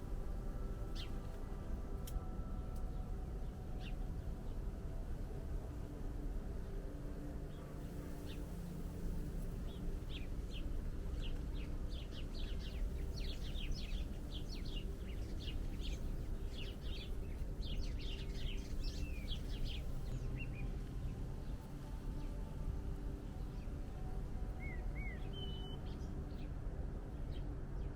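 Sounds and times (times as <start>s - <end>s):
small birds chirping: 7.5s - 22.4s, 23.3s - 27.9s.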